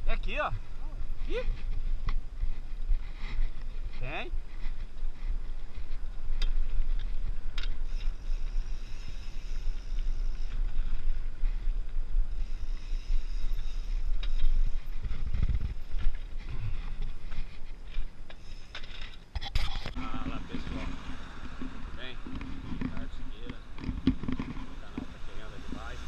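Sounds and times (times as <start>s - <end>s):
wind buffeting microphone: 0.0s - 18.4s.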